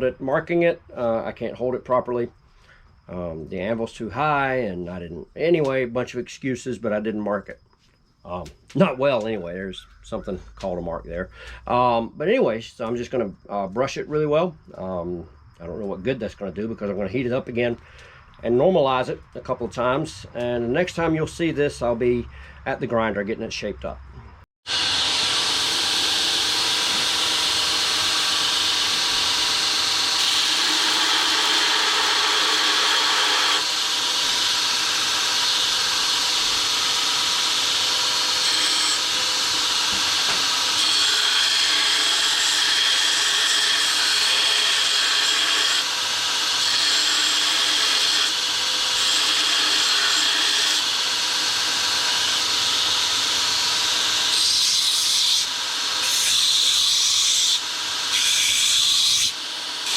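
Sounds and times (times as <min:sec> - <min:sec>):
power grinder grinding steel: 0:24.7 - 0:59.9.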